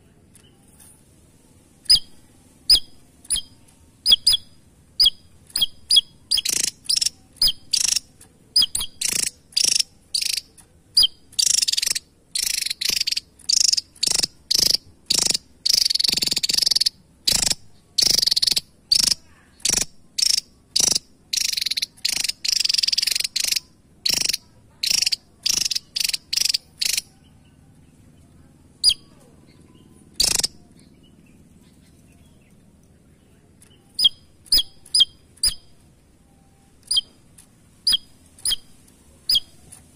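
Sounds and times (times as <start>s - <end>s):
bird song of high-pitched notes: 1.8s - 27.6s, 33.6s - 37.2s, 37.8s - 39.8s.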